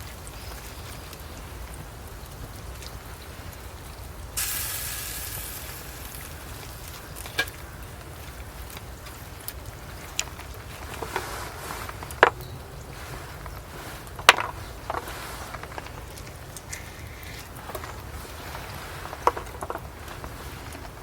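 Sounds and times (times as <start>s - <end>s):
wood fire crackling: 0.0s - 21.0s
steak sizzling hiss: 4.4s - 7.2s.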